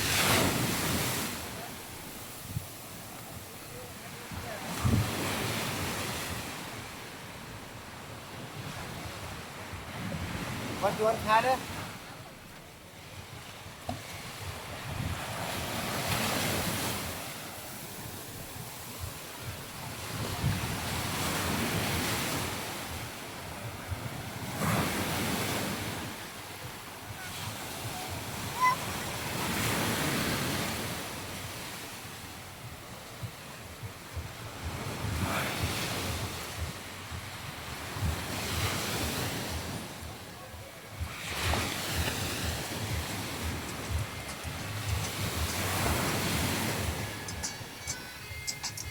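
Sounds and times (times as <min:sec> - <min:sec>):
wind buffeting microphone: 0:12.6 - 0:31.4, 0:32.1 - 0:48.9
surf breaking on beach: 0:33.3 - 0:48.9.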